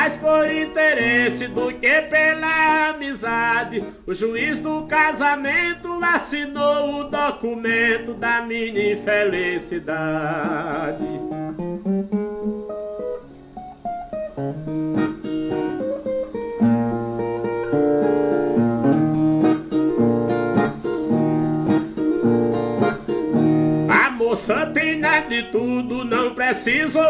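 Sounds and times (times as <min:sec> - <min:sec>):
man singing with vibrato: 0:00.0 - 0:11.4, 0:23.9 - 0:27.0
plucked guitar: 0:00.0 - 0:27.0.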